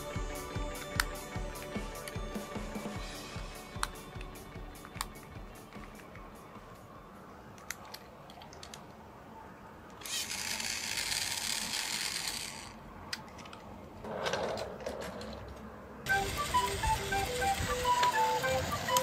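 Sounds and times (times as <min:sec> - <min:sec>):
plastic clicks: 0:07.6 - 0:09.0
toy train motor whirring: 0:10.0 - 0:12.8, 0:16.1 - 0:19.0.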